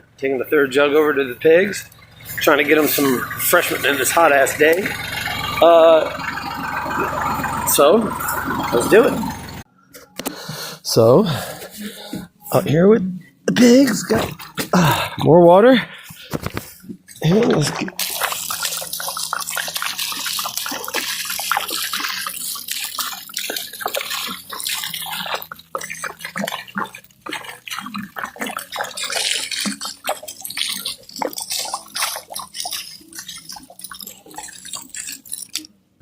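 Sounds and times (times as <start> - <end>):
water pouring from a jug: 0.7 - 9.5, 16.3 - 35.7.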